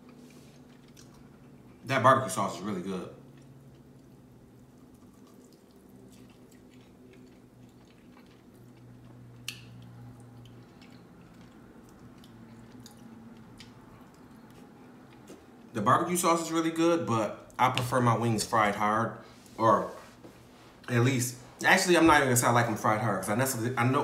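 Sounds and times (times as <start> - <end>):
person chewing and smacking: 0.0 - 1.8, 3.2 - 15.7
low steady hum: 0.0 - 24.0.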